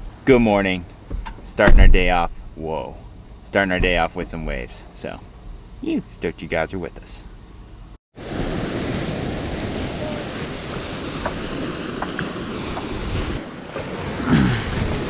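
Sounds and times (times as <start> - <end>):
wind buffeting microphone: 1.1 - 2.7, 8.5 - 15.0
ocean surf breaking: 8.2 - 15.0
short falling vocal sound: 14.2 - 14.8.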